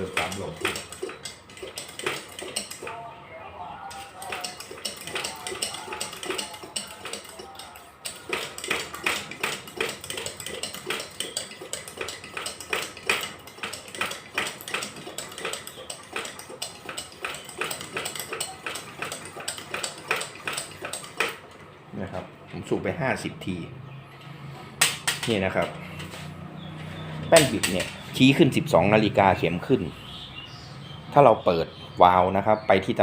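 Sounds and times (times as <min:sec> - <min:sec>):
hand air pump metallic clacking: 0:00.0 - 0:03.0, 0:03.9 - 0:21.6, 0:27.2 - 0:28.1.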